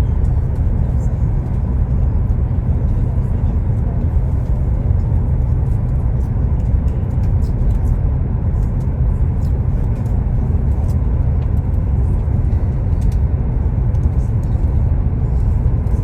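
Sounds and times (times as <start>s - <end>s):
train interior rumble: 0.0s - 16.0s.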